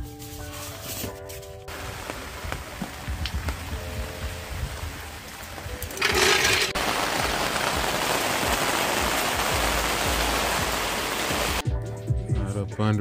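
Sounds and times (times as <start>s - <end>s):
rain falling: 1.7s - 11.6s.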